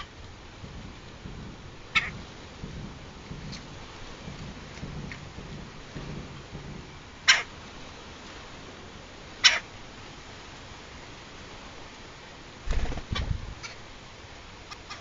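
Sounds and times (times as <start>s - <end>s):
woodpecker calling: 7.3s - 7.5s.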